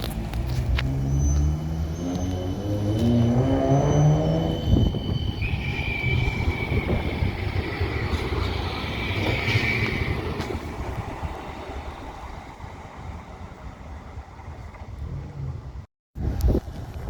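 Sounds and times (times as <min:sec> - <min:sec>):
tram rumbling past: 0:00.0 - 0:16.4
high-pitched squeal: 0:00.5 - 0:11.9.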